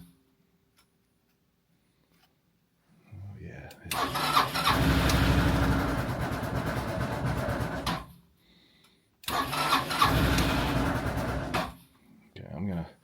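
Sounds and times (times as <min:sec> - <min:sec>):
scooter engine cranking: 0:03.9 - 0:08.1, 0:09.2 - 0:11.8.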